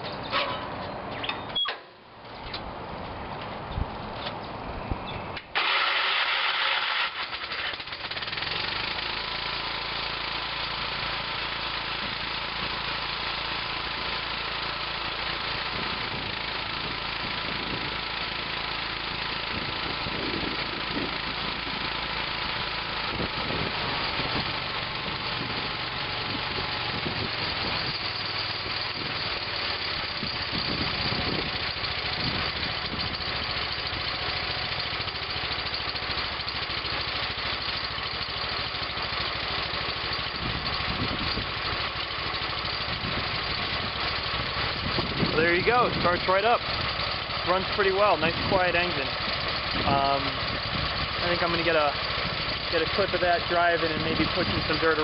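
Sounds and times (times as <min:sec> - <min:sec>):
tractor engine starting and running: 0:00.0 - 0:55.0.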